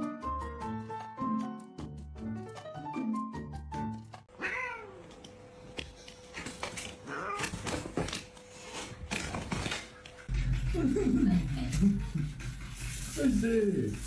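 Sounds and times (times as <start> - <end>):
cat meowing: 4.4 - 5.2, 7.0 - 7.6.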